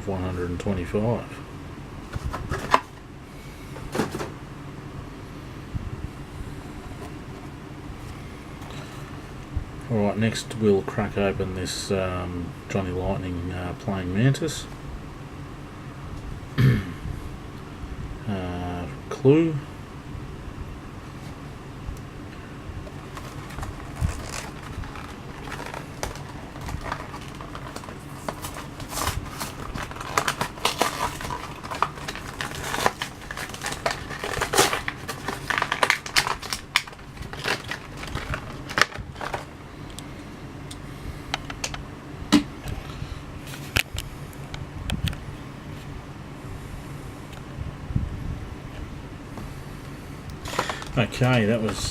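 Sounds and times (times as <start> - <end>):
low steady hum: 0.0 - 51.9
plastic packaging crackling: 22.8 - 39.6, 50.4 - 51.9.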